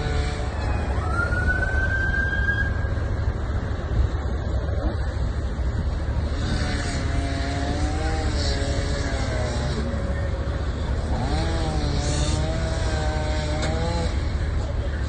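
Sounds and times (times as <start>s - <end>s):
wavering pitched tone: 0.0s - 3.5s
vehicle engine rumbling: 0.0s - 15.0s.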